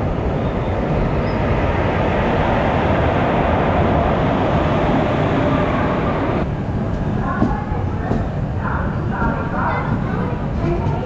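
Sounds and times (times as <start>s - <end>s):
passenger train rumbling past: 0.0s - 11.0s.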